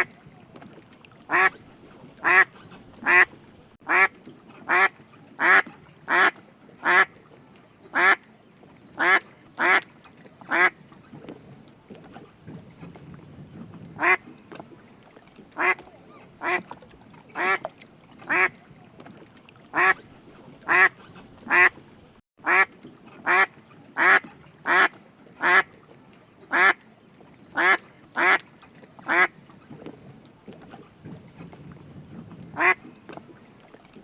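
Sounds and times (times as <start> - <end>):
duck quacking: 1.3 - 1.6, 2.2 - 4.1, 4.7 - 7.1, 8.0 - 8.2, 9.0 - 9.8, 10.5 - 10.7, 14.0 - 14.2, 15.6 - 15.8, 16.4 - 16.6, 18.3 - 18.5, 19.7 - 20.0, 20.7 - 21.8, 22.4 - 25.7, 26.5 - 26.8, 27.6 - 28.4, 29.1 - 29.3, 32.6 - 32.8.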